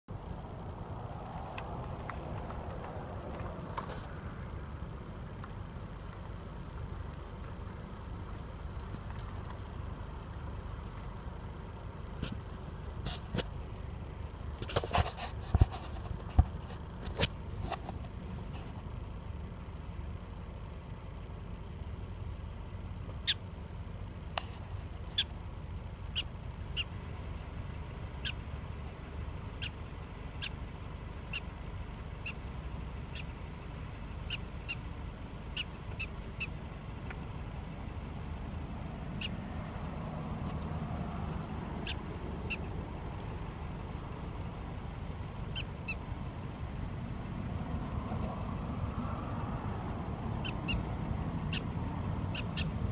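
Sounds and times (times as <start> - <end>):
steady low rumble: 0.1 - 52.9
prairie dog chirping: 23.1 - 23.6, 24.9 - 25.4, 26.0 - 27.0, 28.2 - 28.5, 29.5 - 30.6, 31.2 - 31.6, 32.2 - 32.4, 33.0 - 33.4, 34.2 - 36.6, 39.1 - 39.4, 41.7 - 42.8, 45.4 - 46.2, 50.3 - 52.9.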